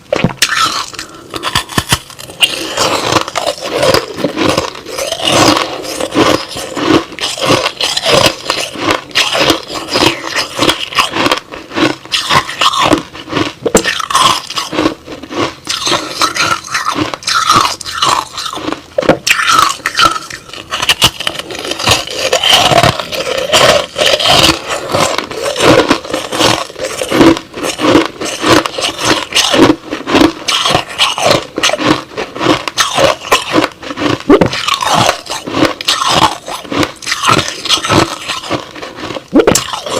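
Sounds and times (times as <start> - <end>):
chewing crushed ice: 0.0 - 39.9.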